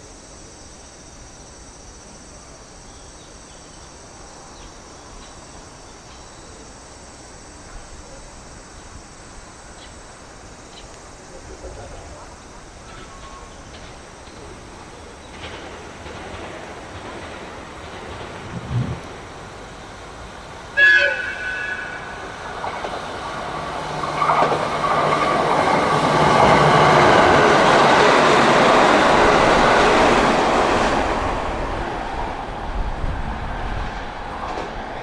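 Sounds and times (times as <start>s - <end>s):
train rumble and wheel clatter: 2.7s - 35.0s
train horn blast: 20.8s - 22.4s.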